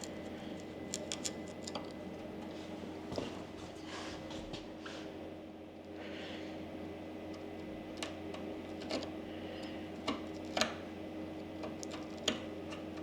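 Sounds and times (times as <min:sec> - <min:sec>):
machine hum: 0:00.0 - 0:03.7.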